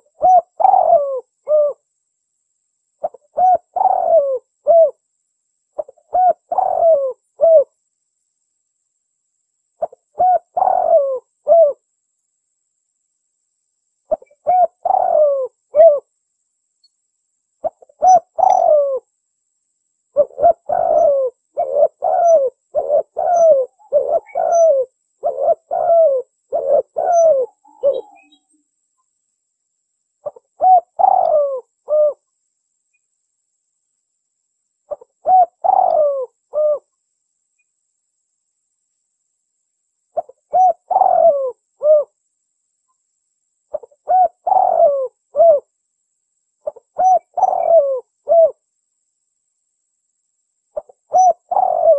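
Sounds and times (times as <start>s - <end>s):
dove cooing: 0.0s - 1.8s, 3.0s - 5.0s, 5.8s - 7.7s, 9.8s - 11.8s, 14.1s - 16.1s, 17.6s - 19.1s, 20.1s - 28.5s, 30.2s - 32.2s, 34.9s - 36.9s, 40.2s - 42.2s, 43.7s - 45.7s, 46.6s - 48.6s, 50.8s - 51.9s.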